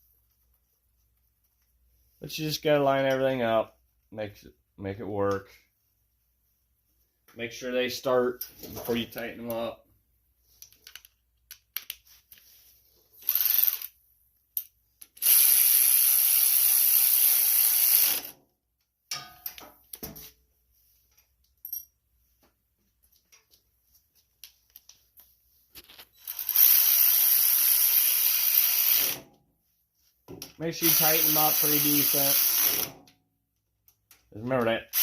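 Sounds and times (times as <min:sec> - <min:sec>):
ratchet wrench clicking: 0:13.2 - 0:13.9, 0:15.1 - 0:18.3, 0:26.2 - 0:29.2, 0:30.9 - 0:32.9.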